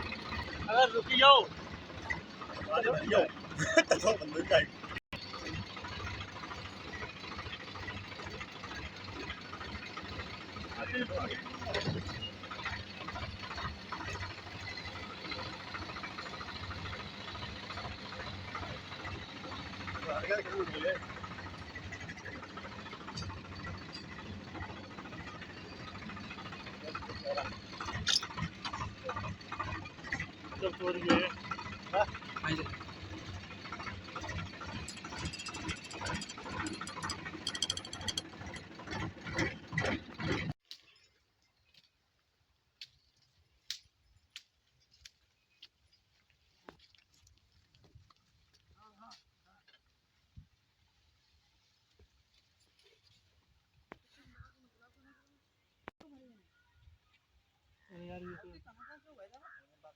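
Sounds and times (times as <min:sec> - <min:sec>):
diesel pump engine running: 0:00.0 - 0:40.6
metal parts clicking and clattering: 0:33.8 - 0:39.1.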